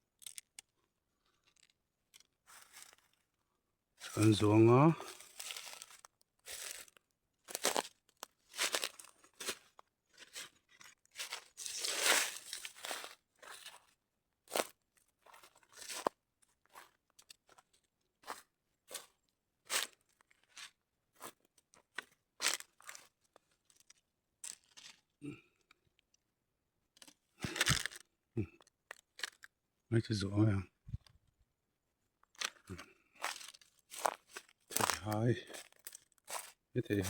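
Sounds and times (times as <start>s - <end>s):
dry crunching and rustling: 4.1s - 13.8s, 27.4s - 28.0s, 32.3s - 37.0s.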